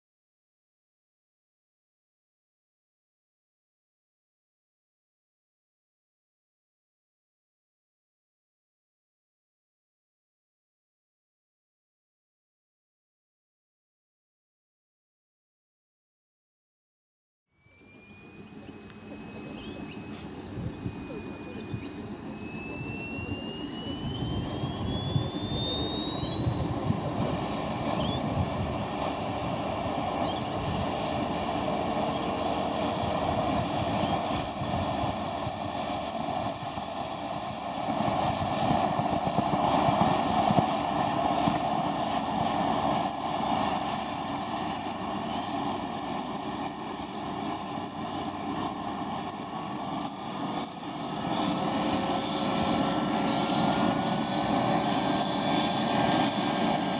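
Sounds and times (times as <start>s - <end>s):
turbine engine whine: 17.5s - 56.9s
rushing jet noise: 18.8s - 56.9s.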